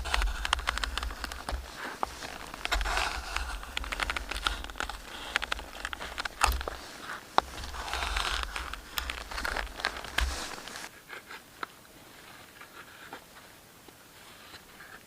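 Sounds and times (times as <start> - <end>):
sharp clicks: 0.0 - 6.8
rustling and crinkling handling: 0.0 - 15.0.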